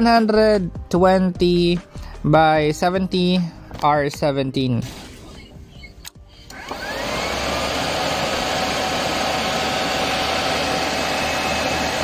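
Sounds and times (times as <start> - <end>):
motor whirring: 5.3 - 12.0
click: 6.0 - 6.6.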